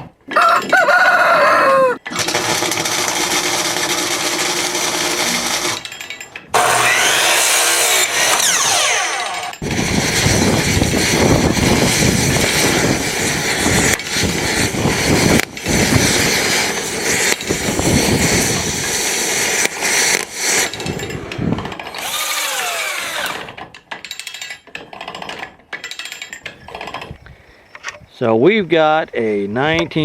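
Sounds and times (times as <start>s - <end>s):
power tool motor running: 2.1s - 5.8s, 6.6s - 20.8s, 21.9s - 23.6s.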